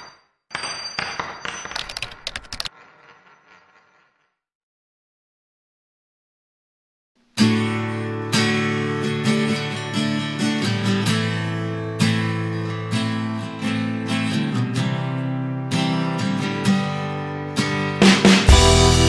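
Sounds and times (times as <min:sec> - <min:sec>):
acoustic guitar strumming chords: 0:07.4 - 0:19.0.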